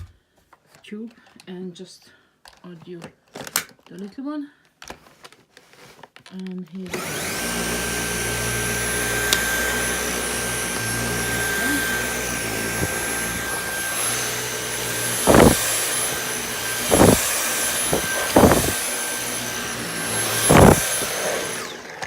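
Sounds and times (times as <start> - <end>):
cordless vacuum whine: 6.9 - 22.0
vacuum picking up dirt: 6.9 - 22.0.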